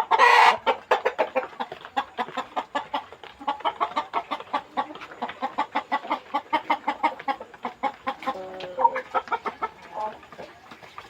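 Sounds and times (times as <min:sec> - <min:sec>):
chicken long drawn-out call: 0:00.0 - 0:01.3
chickens clucking: 0:00.0 - 0:11.0.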